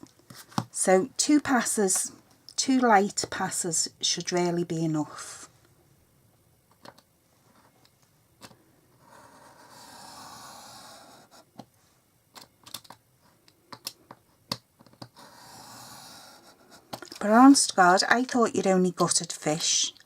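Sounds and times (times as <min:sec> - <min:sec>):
small clicks and taps: 0:12.4 - 0:15.1.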